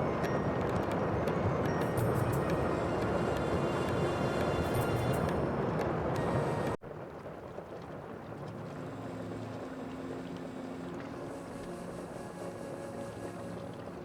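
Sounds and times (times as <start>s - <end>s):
low steady drone: 1.6s - 6.8s, 8.5s - 14.0s.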